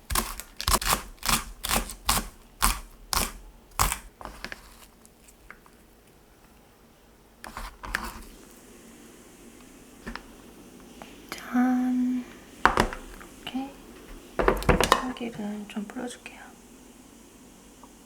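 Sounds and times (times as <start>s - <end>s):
utensil knocking on hard surface: 12.6s - 13.2s, 14.4s - 15.2s.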